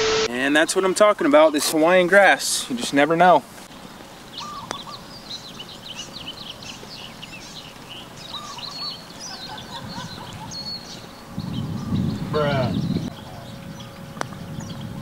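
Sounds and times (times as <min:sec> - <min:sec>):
outdoor background hiss: 0:00.0 - 0:15.0
birds twittering: 0:00.8 - 0:15.0
lower whistled bird notes: 0:04.3 - 0:15.0.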